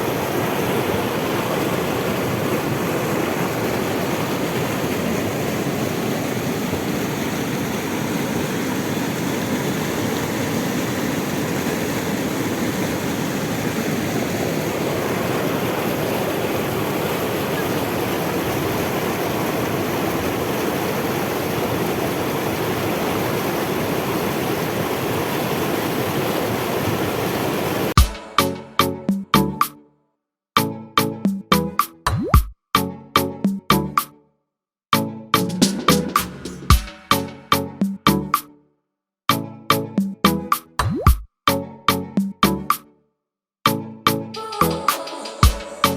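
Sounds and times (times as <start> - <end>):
waterfall rushing: 0.0 - 28.8, 44.4 - 45.9
music drum hits: 28.0 - 29.7, 35.4 - 38.4, 44.6 - 45.9.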